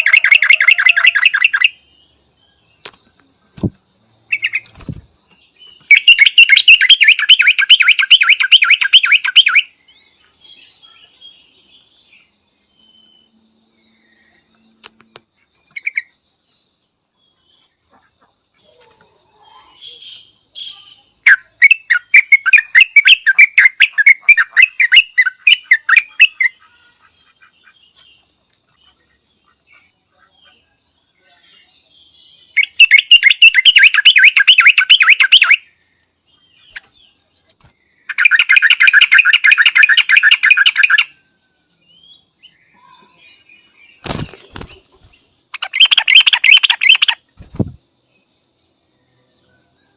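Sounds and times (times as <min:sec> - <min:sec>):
bird chattering calls: 0:05.8 - 0:09.6, 0:19.8 - 0:27.8, 0:32.6 - 0:35.6, 0:38.1 - 0:41.1, 0:44.0 - 0:47.8.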